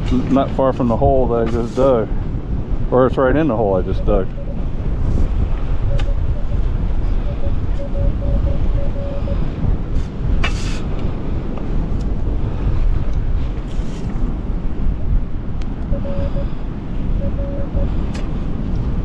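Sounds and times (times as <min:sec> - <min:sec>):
wind buffeting microphone: 0:00.0 - 0:19.0
metal detector beep tone: 0:03.7 - 0:05.0, 0:05.8 - 0:09.6, 0:15.9 - 0:18.0.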